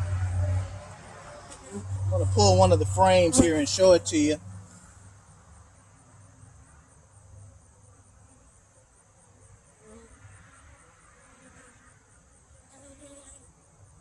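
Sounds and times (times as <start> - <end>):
honeybees buzzing: 0.0 - 4.9.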